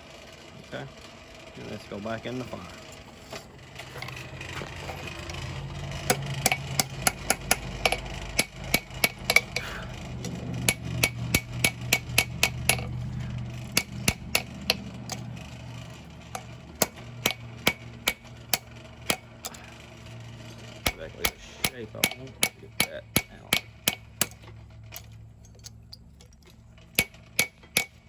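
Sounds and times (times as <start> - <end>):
steady low hum: 0.0 - 28.0
hammer striking steel on anvil: 6.0 - 15.3, 16.3 - 19.6, 20.8 - 24.4, 27.0 - 28.0.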